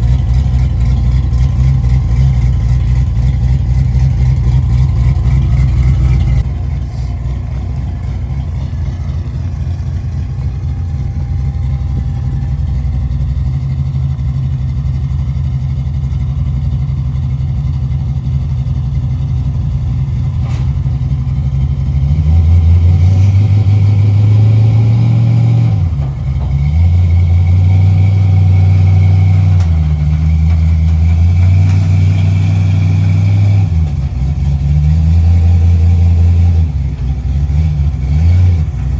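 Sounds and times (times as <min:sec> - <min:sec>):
vehicle engine driving: 0:00.0 - 0:38.9.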